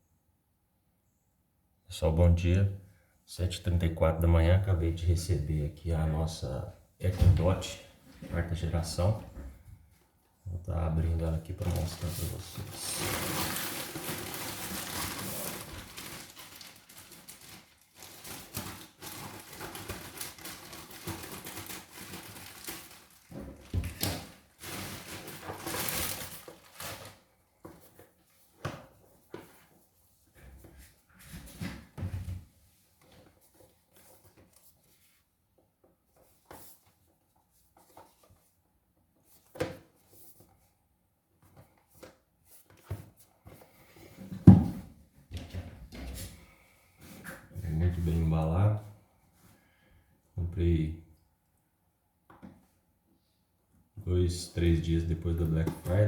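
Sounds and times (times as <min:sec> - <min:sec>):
cardboard packaging rustling: 0:11.6 - 0:29.8.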